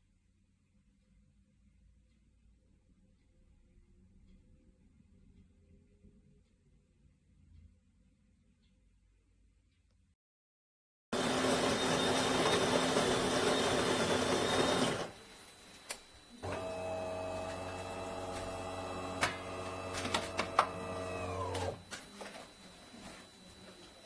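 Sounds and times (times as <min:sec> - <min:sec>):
brew pump humming: 0:11.2 - 0:15.2, 0:16.4 - 0:22.3
coffee grinder grinding beans: 0:11.2 - 0:15.2, 0:16.4 - 0:21.9.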